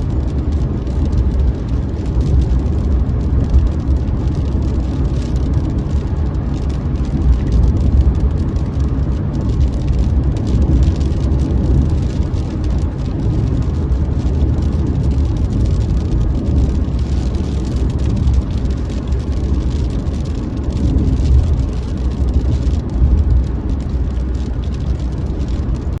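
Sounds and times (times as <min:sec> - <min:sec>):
vehicle engine rumble: 0:00.0 - 0:26.0.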